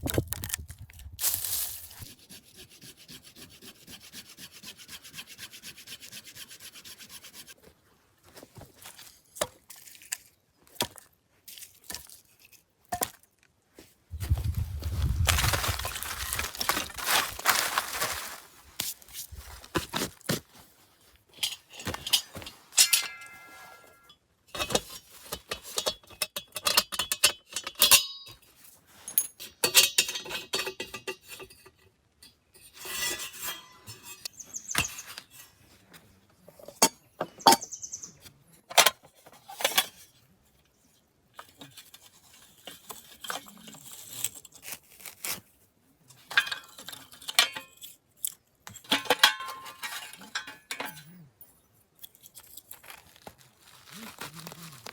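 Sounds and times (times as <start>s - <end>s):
clinks and clatters of cookware: 21.4s - 28.4s, 29.1s - 34.9s, 46.3s - 47.9s, 48.7s - 51.2s.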